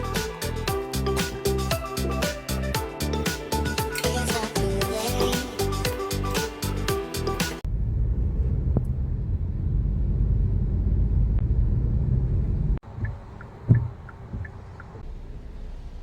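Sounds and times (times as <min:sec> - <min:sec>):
car cabin road noise: 0:07.6 - 0:16.0.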